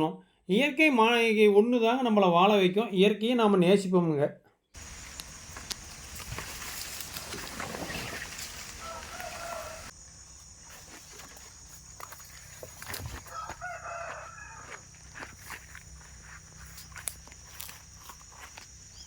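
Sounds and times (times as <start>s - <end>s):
rooster crowing: 8.4s - 9.9s, 13.1s - 15.0s.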